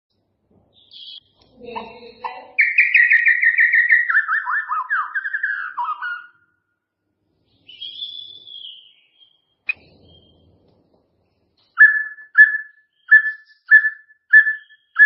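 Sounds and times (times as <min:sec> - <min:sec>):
songbird singing: 0:00.7 - 0:06.7, 0:07.4 - 0:10.8, 0:11.4 - 0:15.0
whistled bird note: 0:02.6 - 0:06.6, 0:11.7 - 0:15.0.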